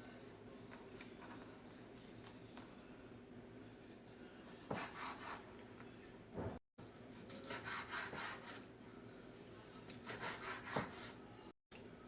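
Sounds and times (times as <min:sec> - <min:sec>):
knife sawing on wooden board: 0:04.7 - 0:05.4, 0:07.3 - 0:08.6, 0:10.0 - 0:11.2.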